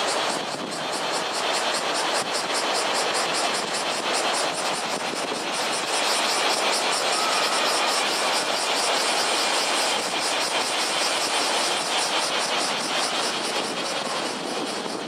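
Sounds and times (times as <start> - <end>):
pulsing high hiss: 0.0 - 15.0
surf crashing on beach: 4.8 - 9.9.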